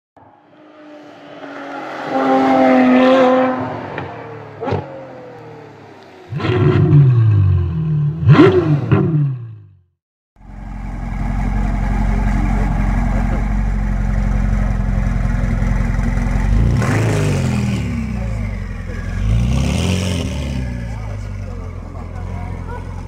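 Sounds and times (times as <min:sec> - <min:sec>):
car engine revving: 0:00.2 - 0:09.5, 0:10.4 - 0:23.0
car engine idling: 0:10.4 - 0:19.6, 0:20.5 - 0:23.0.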